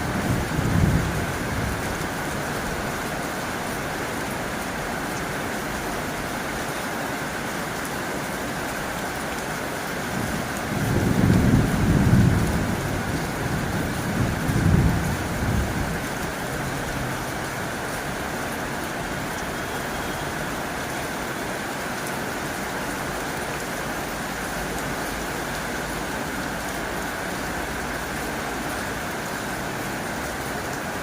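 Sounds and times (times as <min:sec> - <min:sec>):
low thunder rumble: 0:00.0 - 0:02.0, 0:10.1 - 0:16.2
heavy rain on a tin roof: 0:00.0 - 0:31.0.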